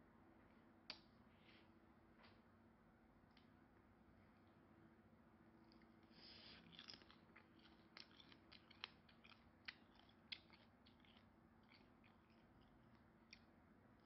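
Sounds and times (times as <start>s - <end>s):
low steady hum: 0.0s - 14.0s
close-up chewing: 5.6s - 14.0s
wet mouth clicks and smacks: 6.6s - 13.5s.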